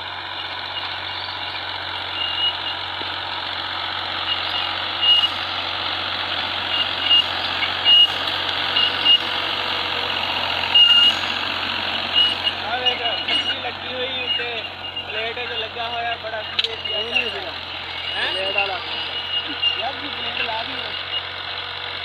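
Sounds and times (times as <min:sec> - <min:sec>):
tractor diesel engine running: 0:00.0 - 0:22.0
short high-pitched beeps: 0:02.0 - 0:02.8, 0:04.3 - 0:05.4, 0:06.7 - 0:09.5, 0:10.6 - 0:11.3, 0:12.1 - 0:21.3.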